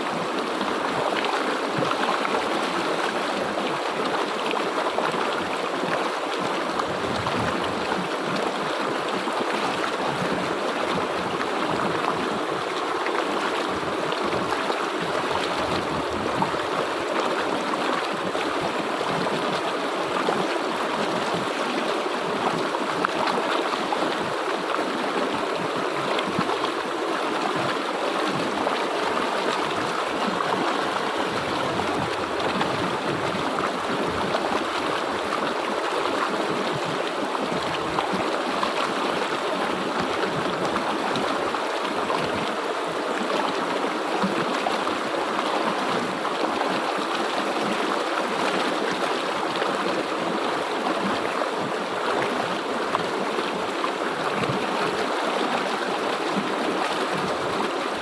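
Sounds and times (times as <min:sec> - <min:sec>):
river water over rocks: 0:00.0 - 0:58.0.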